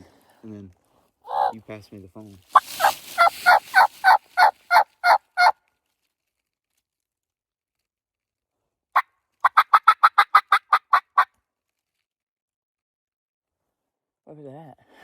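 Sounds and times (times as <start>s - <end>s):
wild turkey yelping: 1.3s - 1.6s, 2.6s - 5.5s, 9.4s - 11.3s.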